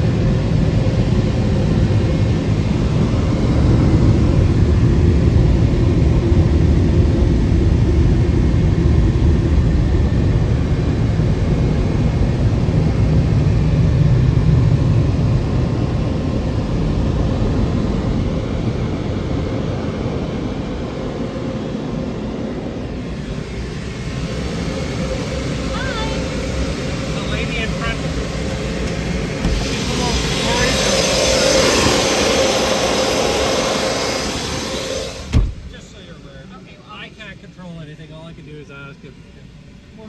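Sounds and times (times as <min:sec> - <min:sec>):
car wash equipment rushing: 0:10.3 - 0:37.4.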